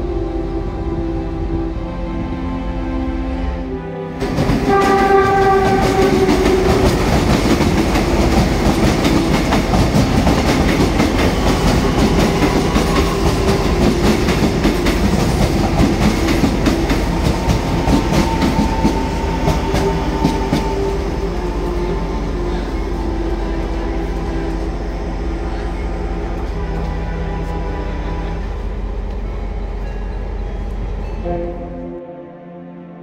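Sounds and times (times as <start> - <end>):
train chord horn: 0.0 - 10.1, 10.7 - 28.8, 31.1 - 33.0
train wheels clattering over joints: 4.2 - 21.0.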